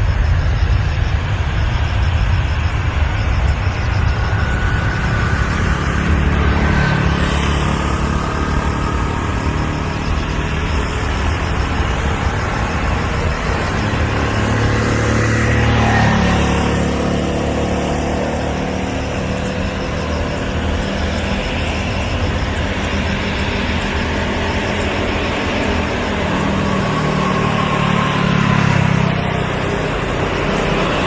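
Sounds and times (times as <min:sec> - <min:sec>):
faint engine whine: 0:00.0 - 0:31.0
jet engines rumbling: 0:00.0 - 0:31.0.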